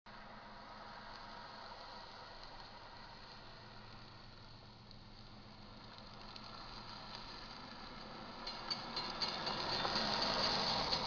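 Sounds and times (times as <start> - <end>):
freight train rumble: 2.7 - 11.0.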